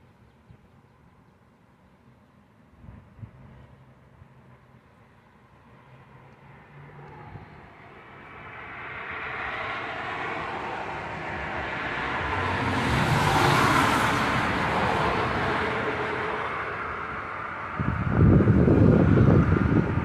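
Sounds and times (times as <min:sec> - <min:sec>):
strong wind gusting: 0:07.1 - 0:20.0
wind buffeting microphone: 0:09.5 - 0:20.0.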